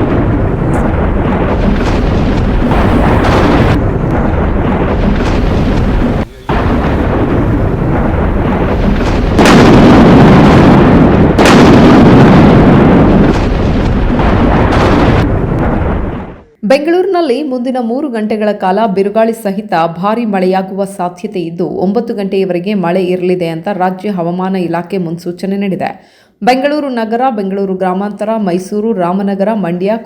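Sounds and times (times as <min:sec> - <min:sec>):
heavy rain: 0:00.0 - 0:16.6
rolling thunder: 0:00.0 - 0:16.6.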